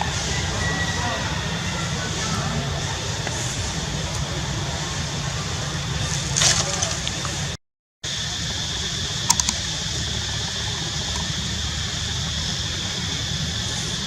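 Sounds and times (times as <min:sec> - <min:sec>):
background hum and hiss: 0:00.0 - 0:14.0
quick clicks: 0:09.2 - 0:09.7.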